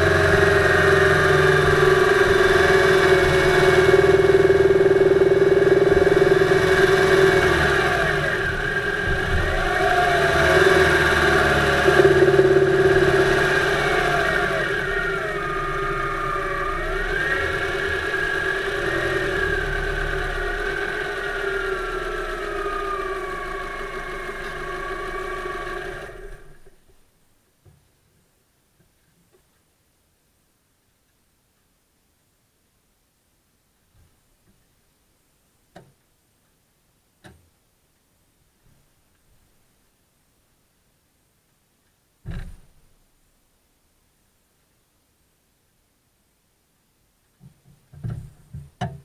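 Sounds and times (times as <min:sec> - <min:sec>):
car engine running: 0:00.0 - 0:26.8.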